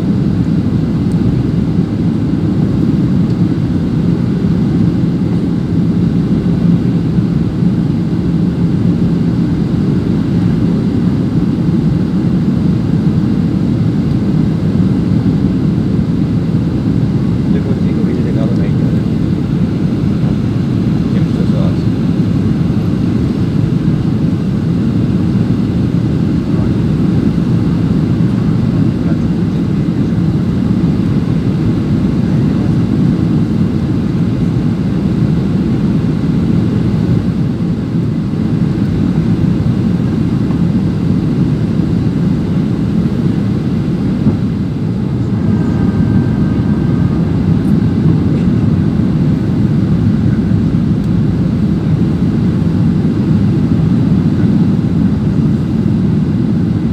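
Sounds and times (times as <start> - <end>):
airliner cabin drone: 0.0 - 56.9
faint tone: 44.1 - 50.7.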